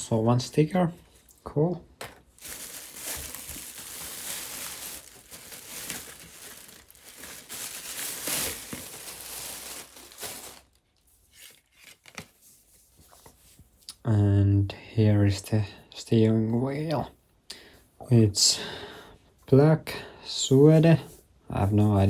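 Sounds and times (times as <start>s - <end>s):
packaging crinkling and rustling: 2.0s - 12.5s.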